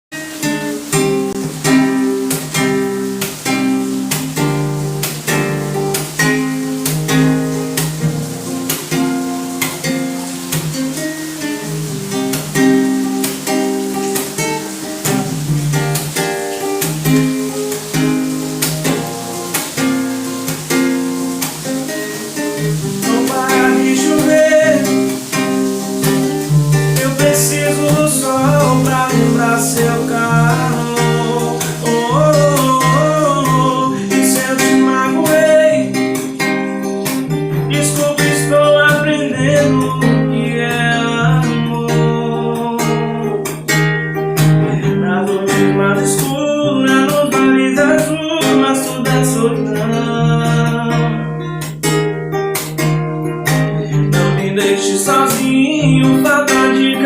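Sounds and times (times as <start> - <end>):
acoustic guitar strumming: 0.1 - 57.0
person singing: 8.8 - 16.0, 16.6 - 43.7, 44.6 - 51.5, 53.7 - 57.0.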